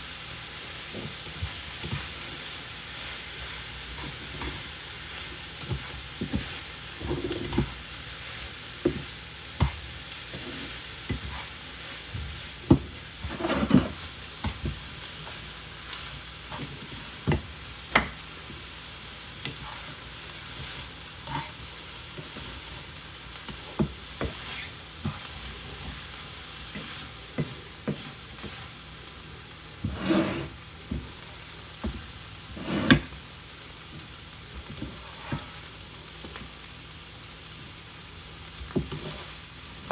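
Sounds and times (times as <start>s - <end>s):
rice sizzling in a pan: 0.0s - 39.9s
spatula scraping a pan: 0.8s - 28.8s, 29.7s - 31.1s, 31.8s - 33.2s, 34.7s - 35.7s, 38.8s - 39.4s.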